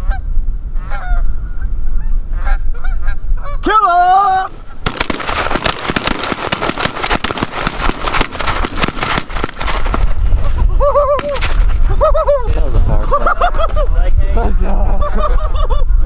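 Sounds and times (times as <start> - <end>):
shotgun shots: 4.8 - 12.0
steady low rumble: 4.8 - 14.9.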